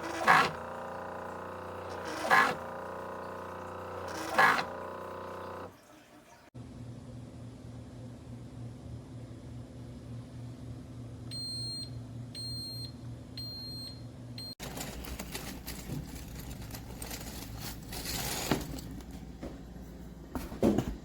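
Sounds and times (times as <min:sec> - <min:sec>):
rustling and handling noise: 0:14.6 - 0:21.0.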